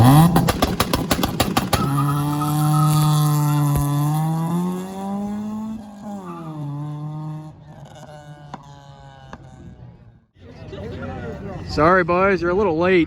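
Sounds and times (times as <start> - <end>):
car engine revving high: 0.0 - 10.0.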